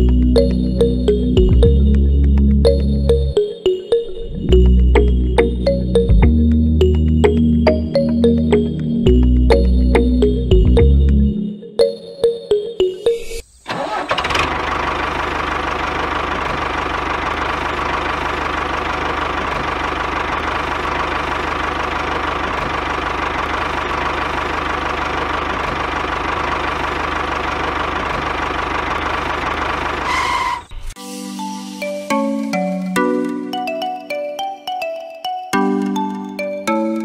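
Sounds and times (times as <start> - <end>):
diesel tractor engine chugging: 13.7 - 30.7.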